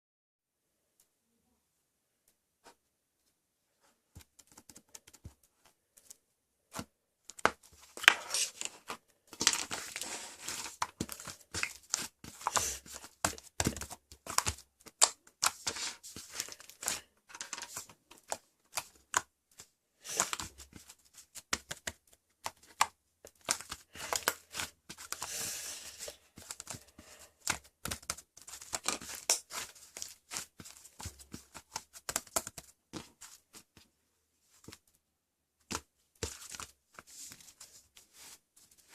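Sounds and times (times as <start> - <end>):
crinkling and tearing: 7.9 - 19.1.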